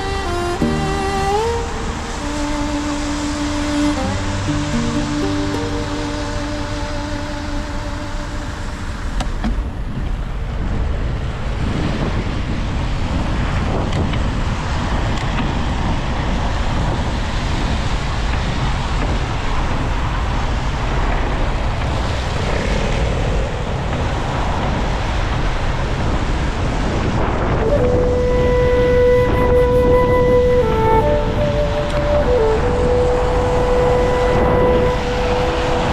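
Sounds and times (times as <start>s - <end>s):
city traffic noise: 0.0s - 10.8s
wind rushing over microphone: 0.0s - 35.9s.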